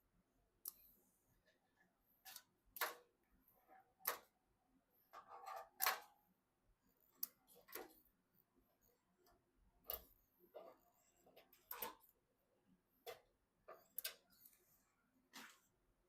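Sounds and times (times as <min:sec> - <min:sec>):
computer hardware clicks and taps: 0:00.6 - 0:00.9, 0:04.0 - 0:04.4, 0:09.8 - 0:12.2, 0:13.0 - 0:14.6.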